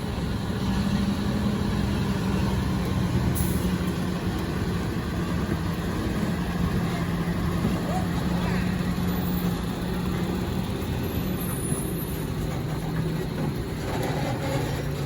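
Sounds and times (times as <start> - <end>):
truck engine droning: 0.0 - 15.0.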